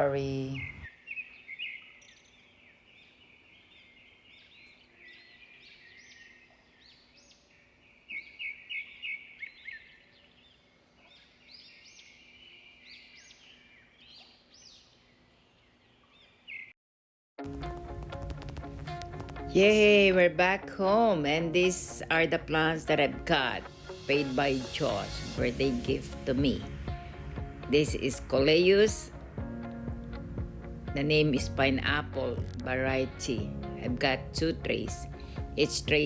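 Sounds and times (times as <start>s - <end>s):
small songbirds chirping: 0.1s - 16.7s.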